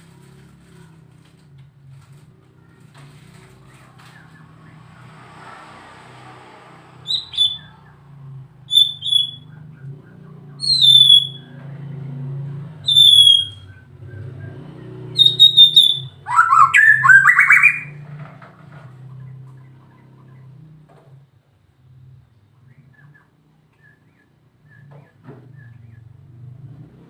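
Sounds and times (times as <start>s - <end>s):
bird singing whistles: 7.0s - 7.9s, 8.7s - 9.6s, 10.6s - 11.6s, 12.8s - 14.6s, 15.2s - 18.0s, 22.7s - 26.1s.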